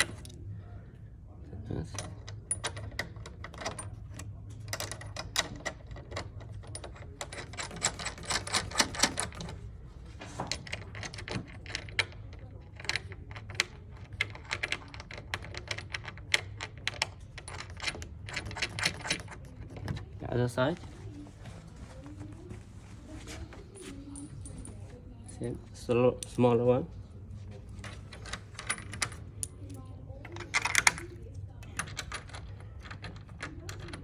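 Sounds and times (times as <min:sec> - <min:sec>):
steady low hum: 0:00.0 - 0:34.0
metallic clicking of bolts and nuts: 0:01.8 - 0:09.6, 0:10.5 - 0:20.0, 0:27.8 - 0:34.0.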